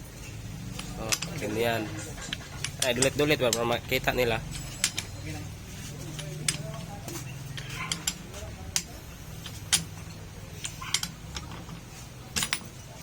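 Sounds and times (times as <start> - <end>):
light metallic clicks and taps: 6.1 - 11.6.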